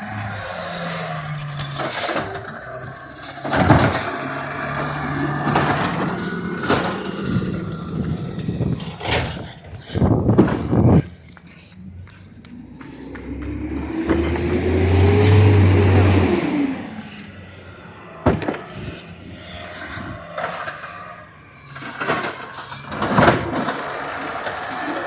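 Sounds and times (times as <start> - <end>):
garbage truck engine running: 0.0 - 11.2, 12.6 - 25.0
clanks and bangs: 2.0 - 11.0, 18.2 - 19.0.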